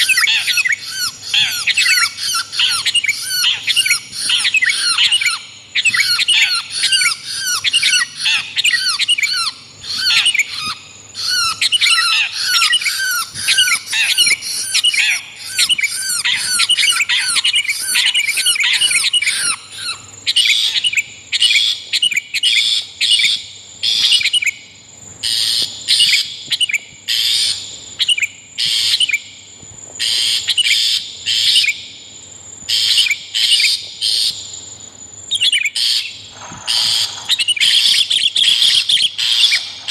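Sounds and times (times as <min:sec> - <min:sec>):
harsh bird calls: 0:00.0 - 0:24.5, 0:35.3 - 0:39.9
bird calls: 0:00.0 - 0:29.3, 0:35.3 - 0:39.9.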